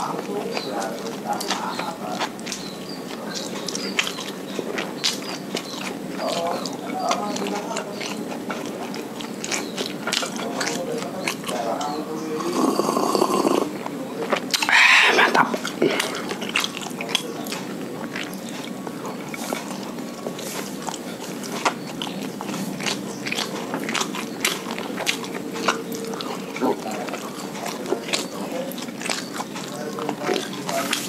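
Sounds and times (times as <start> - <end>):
mouth clicks: 0.0 - 31.0
person chewing: 0.0 - 31.0
wet lip smacks: 14.5 - 19.8.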